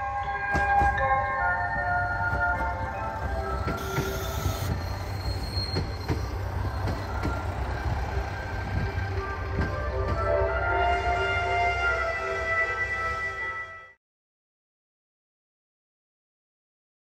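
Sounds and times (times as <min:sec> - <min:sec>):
train low rumble: 0:00.0 - 0:14.0
wheels clicking over rail joints: 0:00.5 - 0:10.3
faint wheel squeal: 0:03.8 - 0:07.3.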